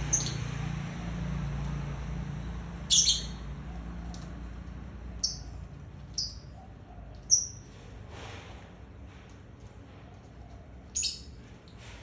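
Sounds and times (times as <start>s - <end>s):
small bird chirping: 0.0s - 0.5s, 2.8s - 3.5s, 5.1s - 7.7s, 10.9s - 11.4s.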